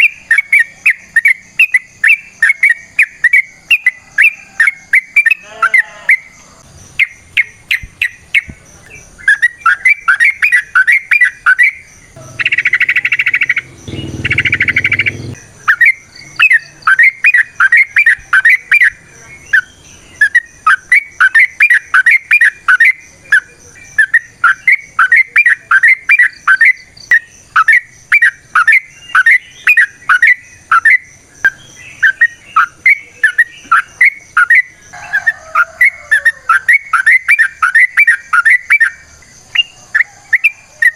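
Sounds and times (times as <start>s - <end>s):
bird singing rapid sharp notes: 0.0s - 34.8s
faint high-pitched insect drone: 0.0s - 40.9s
harsh rasping bird bursts: 12.2s - 15.4s.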